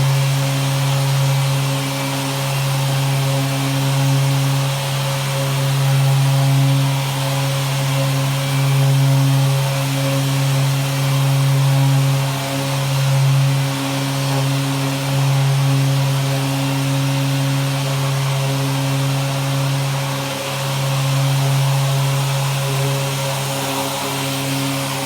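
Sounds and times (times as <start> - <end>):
sander with vacuum running: 0.0 - 25.0.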